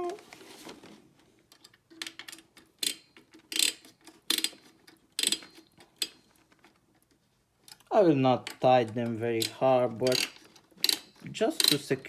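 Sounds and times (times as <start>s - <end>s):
screwdriver turning screws: 2.0s - 6.2s, 8.5s - 11.8s.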